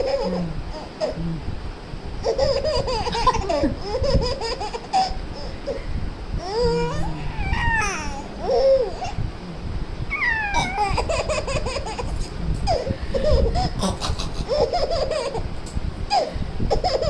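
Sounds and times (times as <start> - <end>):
baby giggling: 0.0 - 1.2, 2.2 - 5.8, 6.4 - 9.2, 10.2 - 15.5, 16.1 - 17.0
baby squealing: 6.4 - 9.2, 10.1 - 11.3.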